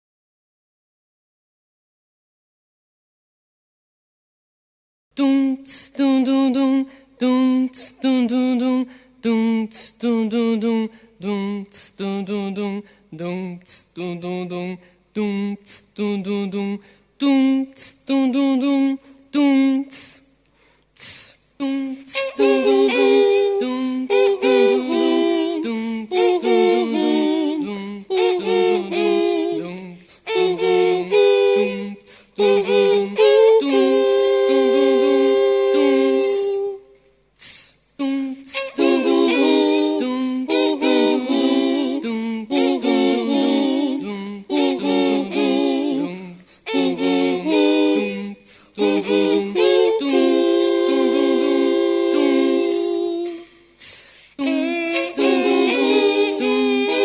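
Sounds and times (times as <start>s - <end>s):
voices singing chords: 5.2s - 57.0s
vocal percussion beat: 24.1s - 31.2s, 36.2s - 47.8s, 52.6s - 57.0s.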